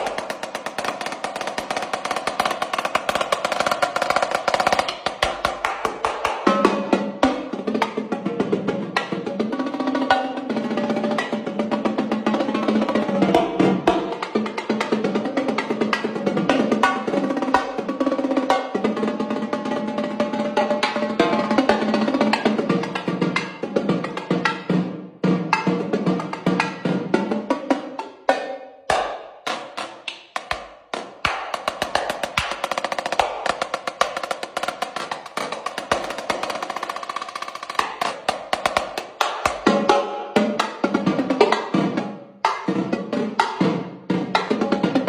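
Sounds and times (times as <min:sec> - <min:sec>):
fast snare drum strokes: 0:00.0 - 0:45.0.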